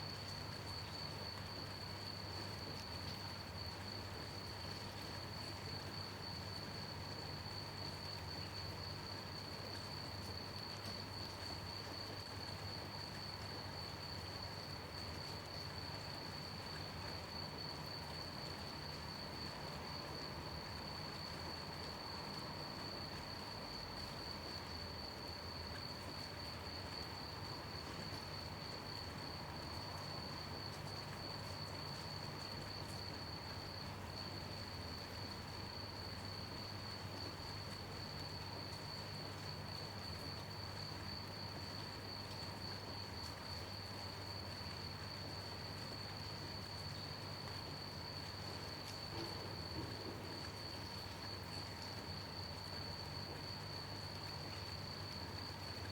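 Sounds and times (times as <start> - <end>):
gentle rain hiss: 0.0 - 55.9
crickets trilling: 12.6 - 55.9.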